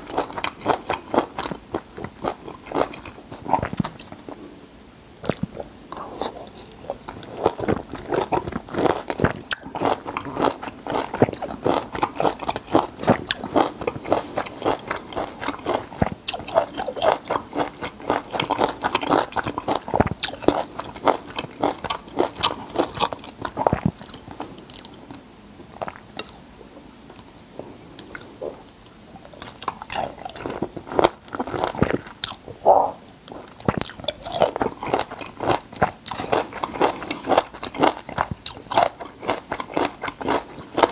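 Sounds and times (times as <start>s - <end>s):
wet chewing of citrus fruit: 0.0s - 4.1s, 5.2s - 25.2s, 33.4s - 40.9s.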